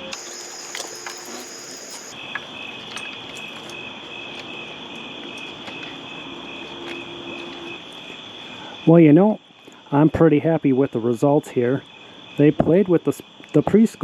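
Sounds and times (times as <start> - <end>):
crickets chirping: 0.0 - 13.4.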